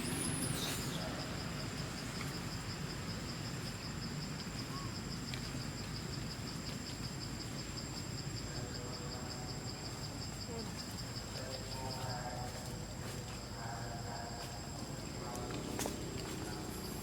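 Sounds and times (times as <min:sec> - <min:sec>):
insect trilling: 0:00.0 - 0:06.5, 0:15.0 - 0:17.0.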